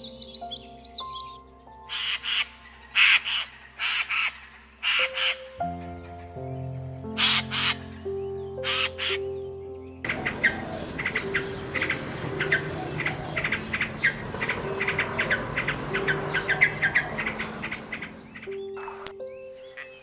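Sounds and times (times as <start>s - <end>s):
soft background music: 0.0s - 20.0s
chorus of rapid chirps: 10.0s - 19.2s.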